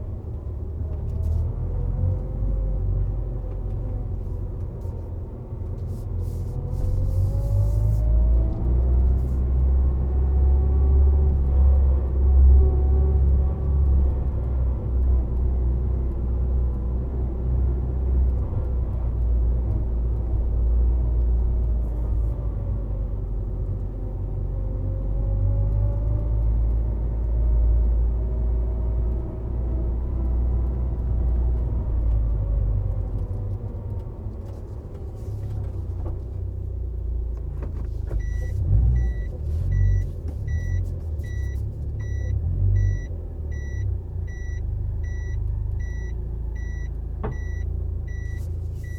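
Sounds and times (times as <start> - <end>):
car engine rumble: 0.0 - 48.9
road noise: 0.0 - 48.9
short electronic beep: 38.2 - 48.9.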